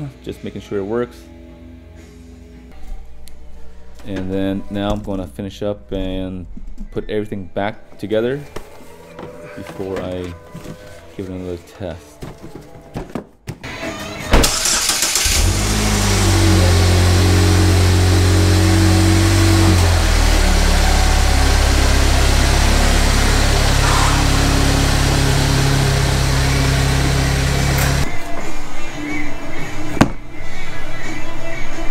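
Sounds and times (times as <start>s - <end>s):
car engine starting and running: 14.4s - 28.1s.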